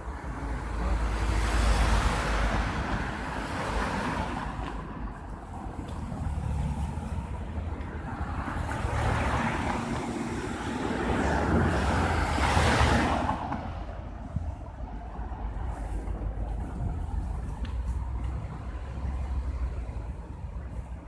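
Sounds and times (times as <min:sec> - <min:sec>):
wind buffeting microphone: 0:07.0 - 0:21.0.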